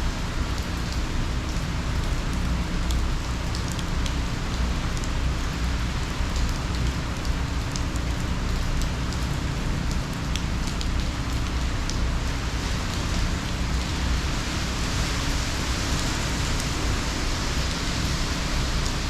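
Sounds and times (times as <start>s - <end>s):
raindrop ticks: 0.6s - 13.1s
rain hissing: 11.7s - 19.0s.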